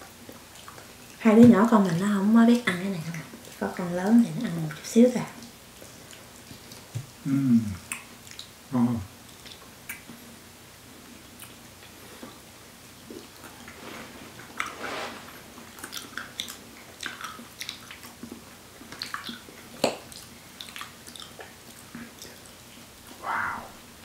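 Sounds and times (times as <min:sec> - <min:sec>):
people chewing: 0:00.2 - 0:08.5, 0:15.4 - 0:23.7.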